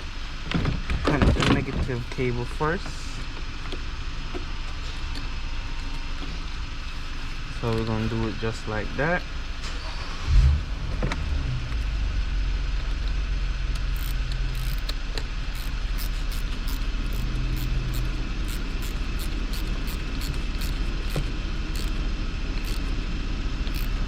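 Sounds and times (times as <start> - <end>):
steady low rumble: 10.3 - 24.0
socket ratchet clicking: 12.9 - 23.0, 23.6 - 24.0.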